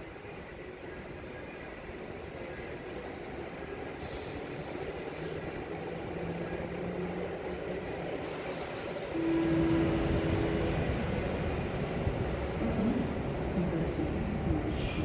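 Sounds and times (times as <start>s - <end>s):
train rolling rumble: 0.0s - 15.0s
steady warning tone: 8.9s - 12.7s.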